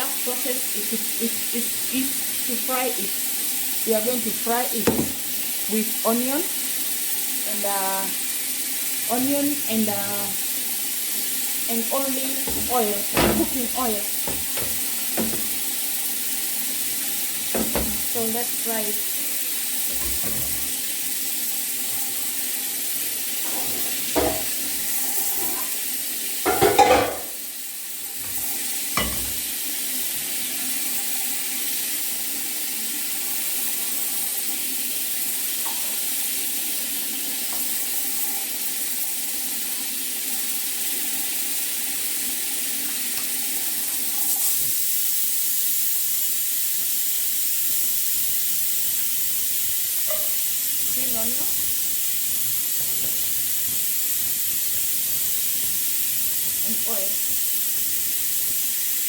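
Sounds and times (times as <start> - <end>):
onion sizzling in a pan: 0.0 - 59.0
utensil knocking against pan: 4.8 - 5.2, 12.4 - 15.6, 17.5 - 18.1, 29.0 - 29.4.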